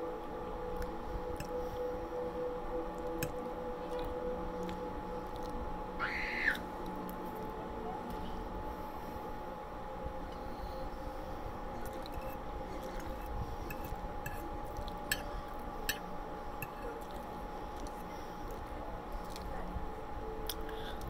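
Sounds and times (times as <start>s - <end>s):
faint steady hum: 0.0s - 21.0s
fork scraping and clinking on plate: 11.9s - 12.4s
person chewing soft food: 16.6s - 19.5s.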